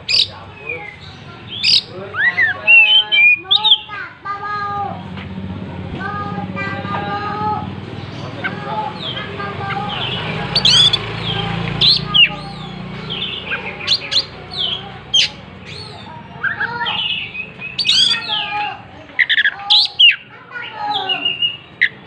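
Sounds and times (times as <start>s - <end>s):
bird singing whistled song: 11.8s - 18.5s, 20.9s - 22.0s.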